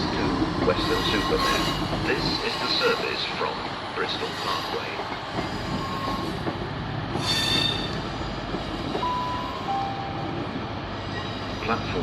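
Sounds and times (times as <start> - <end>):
train wheels rumbling on rail: 0.0 - 12.0
wheel brake squeal: 7.2 - 8.0.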